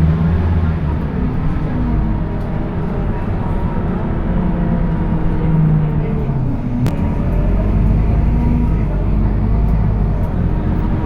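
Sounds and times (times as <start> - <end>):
bus engine drone: 0.0 - 11.0.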